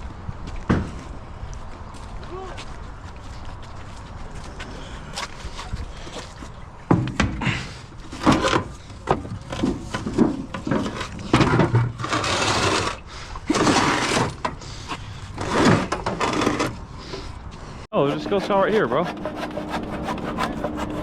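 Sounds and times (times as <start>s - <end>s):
tools and wood clattering: 5.2s - 14.7s, 15.3s - 17.3s
long scraping: 10.8s - 21.0s.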